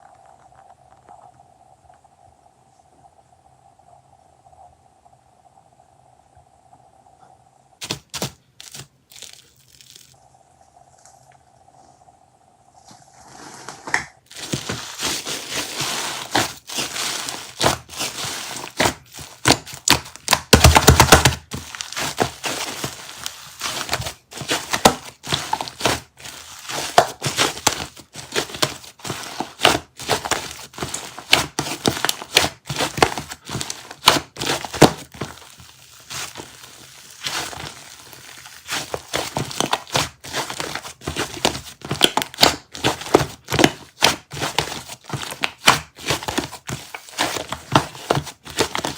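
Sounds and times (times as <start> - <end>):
soft material crinkling: 12.8 - 48.9.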